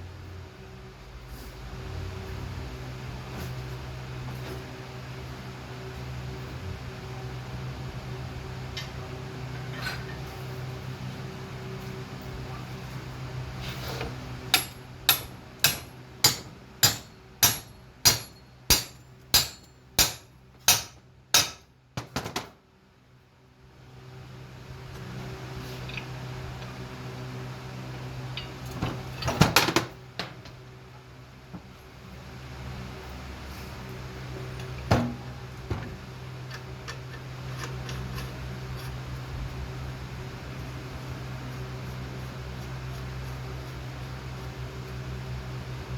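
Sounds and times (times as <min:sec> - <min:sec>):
hammer striking metal: 0:14.6 - 0:21.7.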